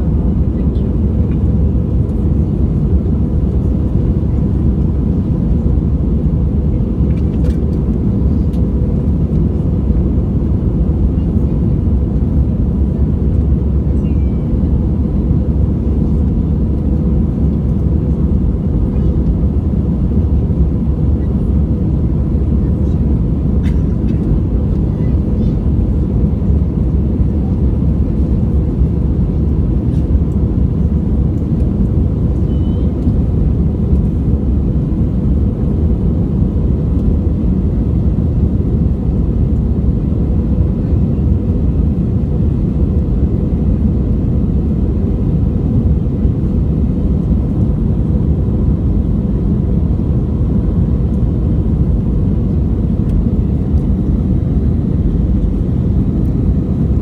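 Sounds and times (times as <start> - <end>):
faint constant hum: 0.0 - 57.0
jet engine roar in cabin: 0.0 - 57.0.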